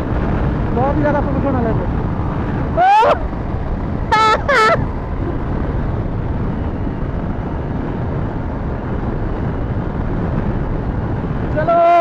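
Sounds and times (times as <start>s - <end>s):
motorcycle engine and road noise: 0.0s - 12.0s
wind buffeting microphone: 0.0s - 12.0s.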